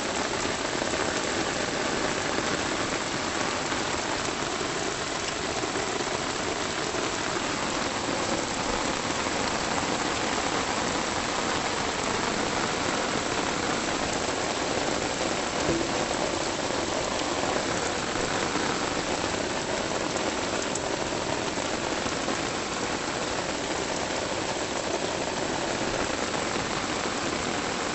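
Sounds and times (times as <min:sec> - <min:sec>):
steady rain falling: 0:00.0 - 0:27.9
small knock: 0:15.6 - 0:16.1.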